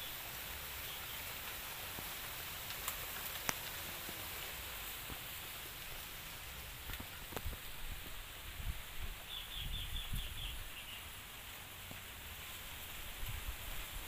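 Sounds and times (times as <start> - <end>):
low wind: 0.0 - 14.0
bird chirping: 0.8 - 1.3, 9.2 - 11.2.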